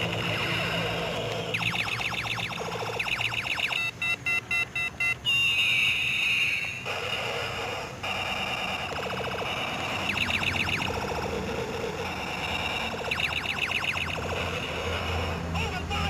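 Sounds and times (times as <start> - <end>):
short electronic beeps: 0.0 - 7.3, 8.1 - 11.3, 12.0 - 15.1
electronic chirps: 0.0 - 15.4
buzzy repeating tone: 0.0 - 16.0
falling whistle: 0.1 - 6.9, 9.4 - 11.0, 12.2 - 14.7.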